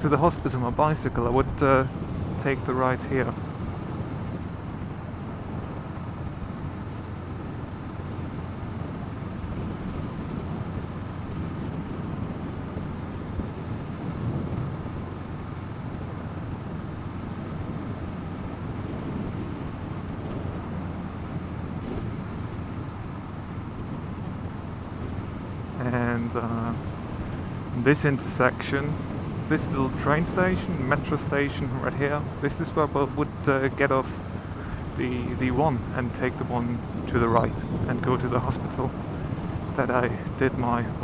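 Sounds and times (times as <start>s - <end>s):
motorcycle engine running: 1.5s - 41.0s
wind noise on microphone: 8.2s - 15.3s, 16.0s - 22.9s, 26.3s - 41.0s.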